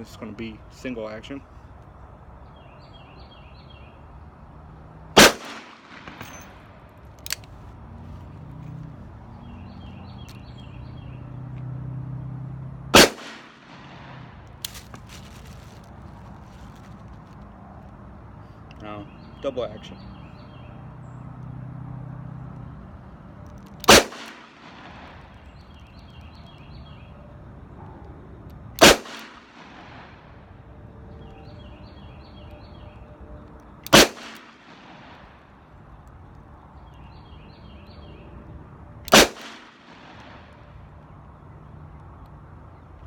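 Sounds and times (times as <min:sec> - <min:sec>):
revolver gunshots with echo: 0:05.2 - 0:06.8, 0:12.9 - 0:14.4, 0:23.8 - 0:25.2, 0:28.8 - 0:30.3, 0:33.9 - 0:35.4, 0:39.1 - 0:40.5.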